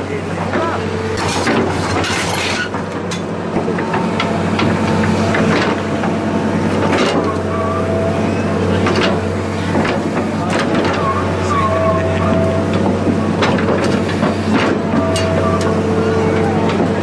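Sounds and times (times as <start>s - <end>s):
engine droning: 0.0s - 17.0s
short knocks and scrapes: 1.2s - 3.2s.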